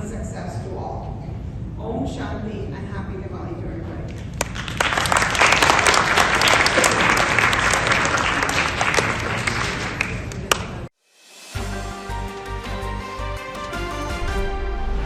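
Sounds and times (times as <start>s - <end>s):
audience applauding: 4.4s - 10.9s
music: 11.0s - 15.0s.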